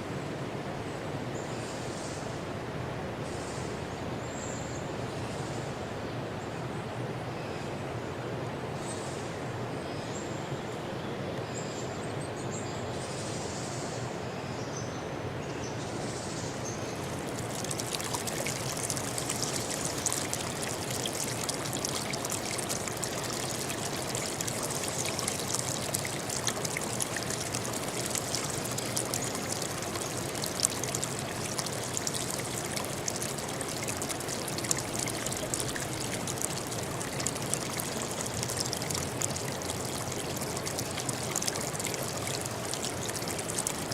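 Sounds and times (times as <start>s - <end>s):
stream water babbling: 15.8s - 43.9s.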